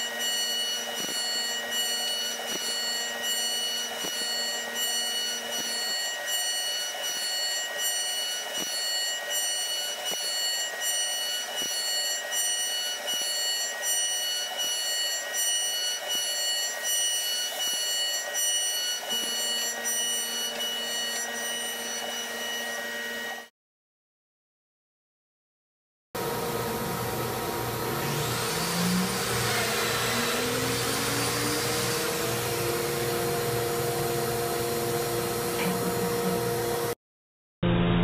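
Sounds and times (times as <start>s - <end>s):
milling machine whining: 0.0s - 23.5s, 26.2s - 37.0s.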